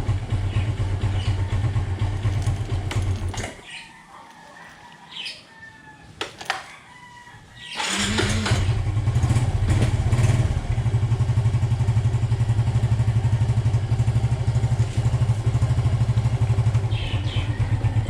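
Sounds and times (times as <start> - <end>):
motorcycle engine idling: 0.0 - 3.8, 7.8 - 18.0
electric starter: 7.8 - 9.0.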